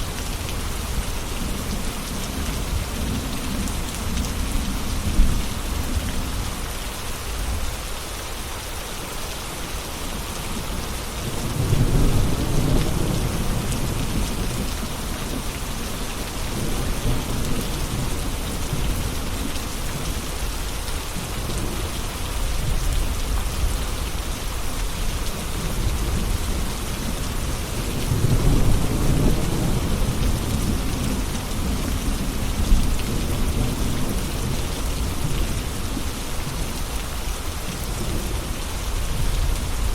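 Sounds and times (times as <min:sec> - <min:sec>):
heavy rain hissing: 0:00.0 - 0:39.9
low rolling thunder: 0:11.2 - 0:19.0, 0:25.6 - 0:36.6.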